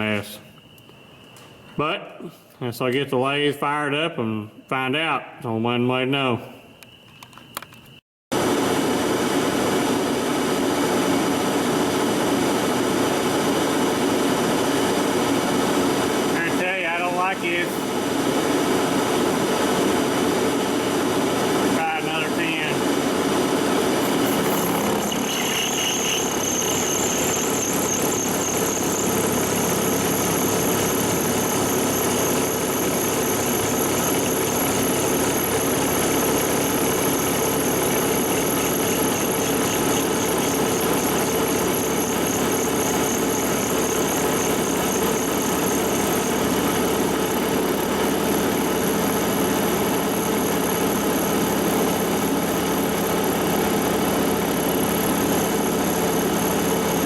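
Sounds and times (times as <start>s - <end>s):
lathe cutting steel: 20.8s - 52.9s
high thin squealing tones: 24.2s - 46.5s.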